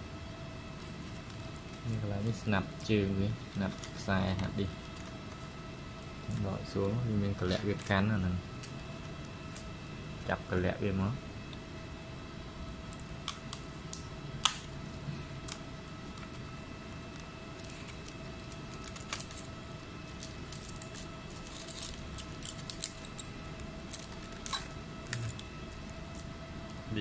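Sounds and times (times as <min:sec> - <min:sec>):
faint electrical hum: 0:00.0 - 0:27.0.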